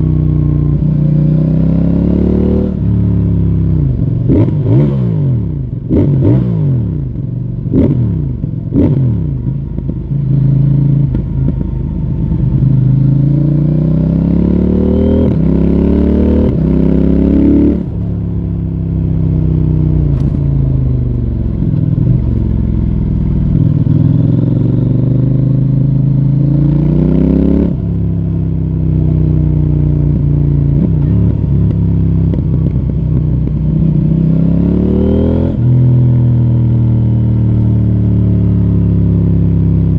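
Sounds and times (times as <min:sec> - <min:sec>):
motorcycle engine revving: 0:00.0 - 0:39.9
exhaust cracks: 0:17.7 - 0:24.8.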